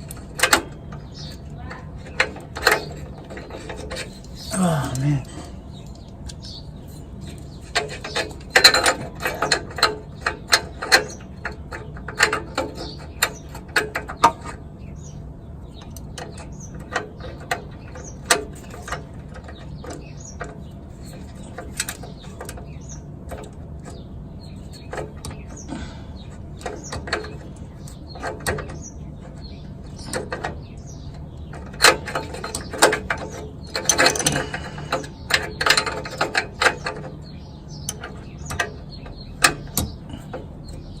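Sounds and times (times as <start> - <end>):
hand ratchet clicking: 31.8 - 37.0.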